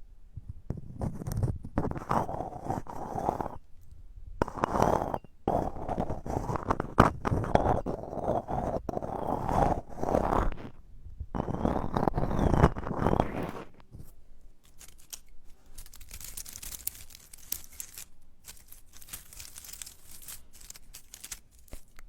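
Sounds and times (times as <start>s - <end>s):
dried plants crinkling: 13.9s - 22.0s.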